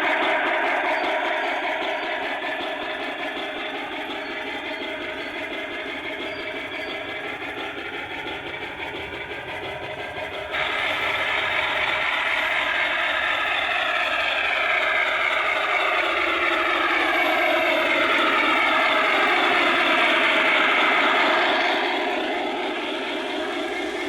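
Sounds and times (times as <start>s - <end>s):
model train running on track: 0.0s - 24.0s.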